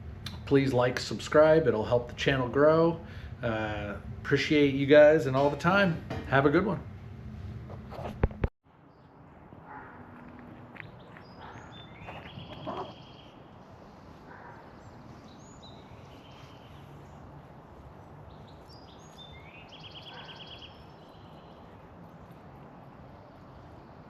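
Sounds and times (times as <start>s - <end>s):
small birds chirping: 8.8s - 24.0s.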